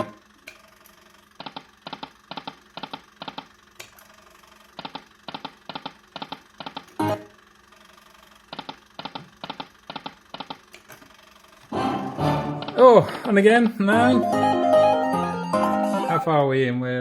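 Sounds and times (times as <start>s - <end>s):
slot machine clicking tones: 11.8s - 12.9s, 13.6s - 16.2s.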